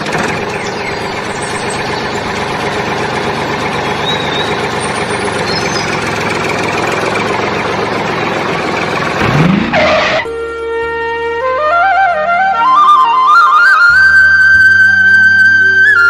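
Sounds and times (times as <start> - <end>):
small engine running: 0.0 - 10.4.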